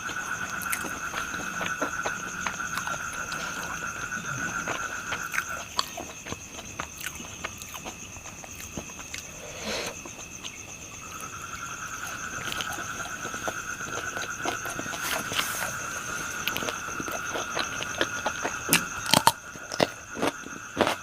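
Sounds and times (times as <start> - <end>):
crunchy chewing clicks: 0.0 - 21.0
insects trilling: 0.0 - 21.0.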